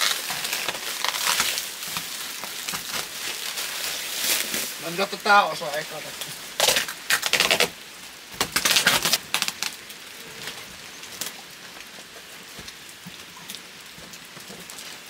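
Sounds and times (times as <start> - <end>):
plastic sheet crinkling: 0.0 - 11.4
rain patter: 0.0 - 15.0.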